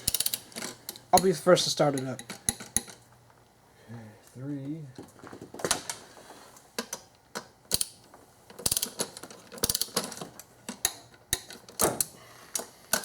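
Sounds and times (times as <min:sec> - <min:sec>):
ratchet wrench clicking: 0:00.0 - 0:00.4, 0:07.7 - 0:08.0, 0:08.6 - 0:10.1.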